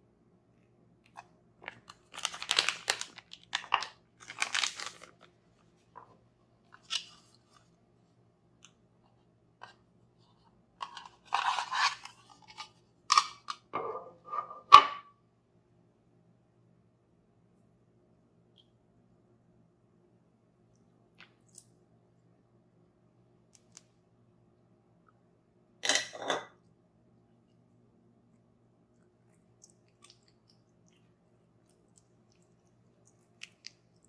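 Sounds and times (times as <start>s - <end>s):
packaging crinkling and tearing: 1.7s - 5.3s.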